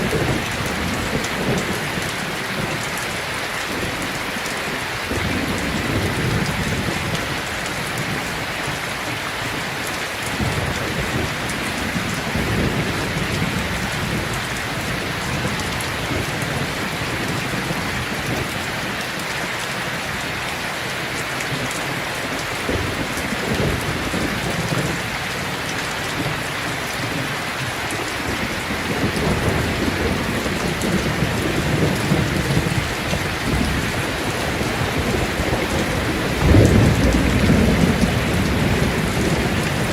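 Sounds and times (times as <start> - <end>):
steady rain: 0.0 - 39.9
distant thunder rolling: 28.2 - 39.9.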